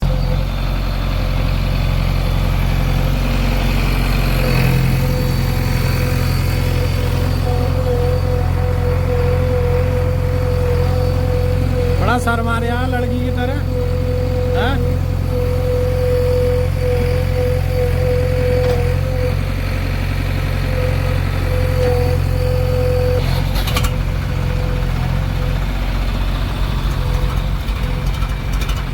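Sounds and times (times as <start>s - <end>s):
steady whine: 0.0s - 28.7s
heavy diesel engine running: 0.0s - 28.9s.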